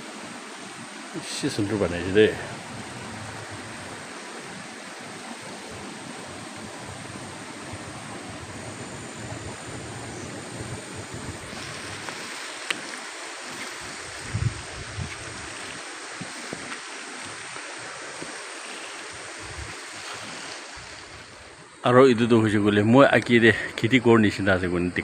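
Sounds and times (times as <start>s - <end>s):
water rushing: 0.0s - 25.0s
wind on microphone: 1.7s - 18.4s, 19.1s - 21.6s.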